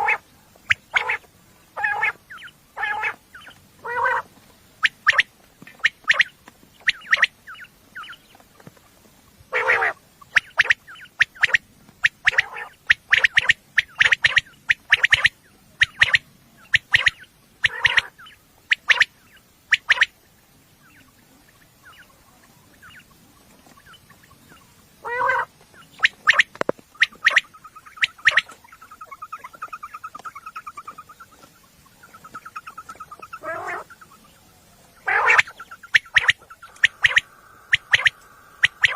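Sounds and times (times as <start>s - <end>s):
quail calling: 0.0s - 8.4s, 9.5s - 38.9s
fast even trill: 35.3s - 38.9s.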